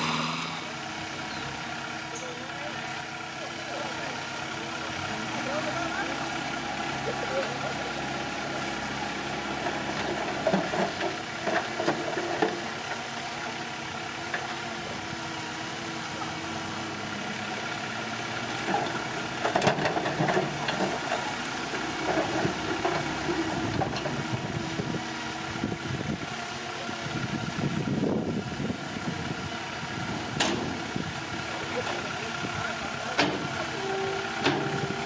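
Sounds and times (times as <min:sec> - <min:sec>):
earthmoving machinery engine: 0:00.0 - 0:01.0
machinery clattering: 0:00.0 - 0:01.0.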